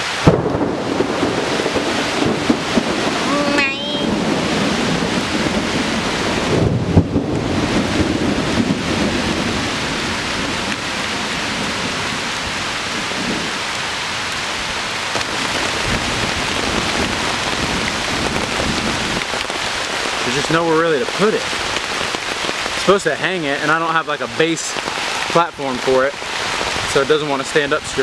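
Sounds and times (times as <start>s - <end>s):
heavy rain on a tarp: 0.0s - 28.0s
low rumble of thunder: 0.2s - 13.7s, 14.7s - 20.4s.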